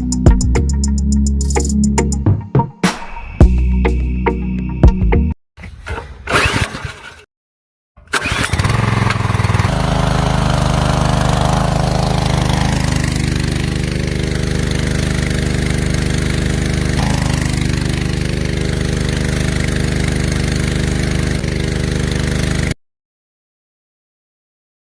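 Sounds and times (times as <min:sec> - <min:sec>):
small engine running: 0:08.0 - 0:22.8.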